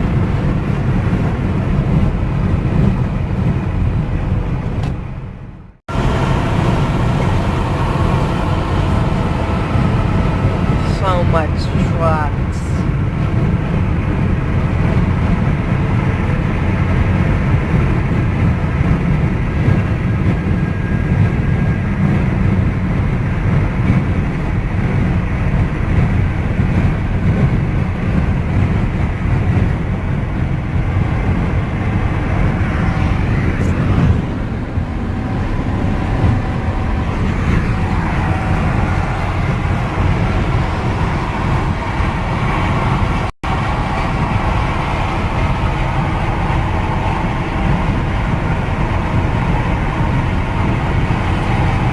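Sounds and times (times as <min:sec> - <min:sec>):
car road noise at speed: 0:00.0 - 0:51.9
faint rising and falling tone: 0:30.6 - 0:51.9.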